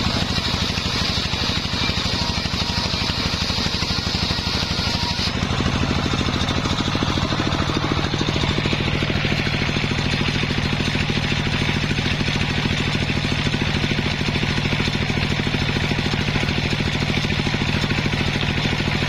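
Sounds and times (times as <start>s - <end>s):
sawmill engine running: 0.0s - 19.0s.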